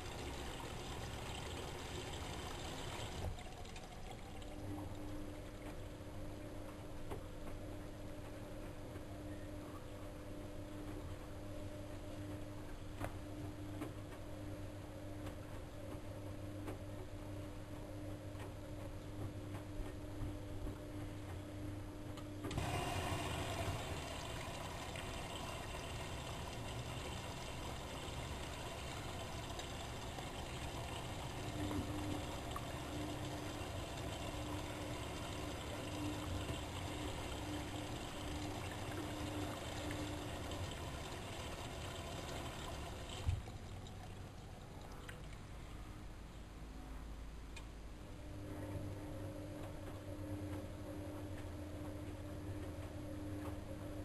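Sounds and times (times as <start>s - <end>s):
water rushing into washing machine: 0.0s - 6.0s, 22.4s - 45.6s
steady low hum: 0.0s - 54.0s.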